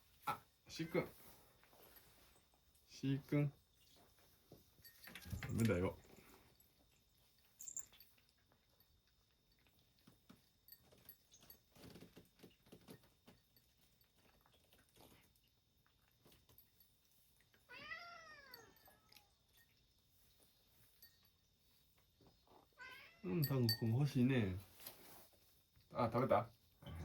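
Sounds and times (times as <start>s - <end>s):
cat meowing: 17.7s - 19.3s, 22.8s - 23.3s.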